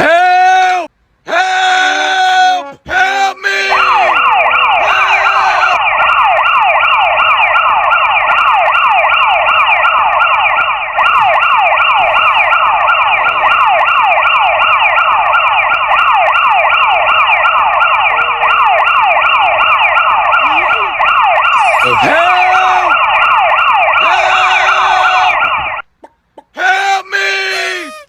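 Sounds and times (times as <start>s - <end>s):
electronic siren falling sweeps: 3.7s - 25.8s.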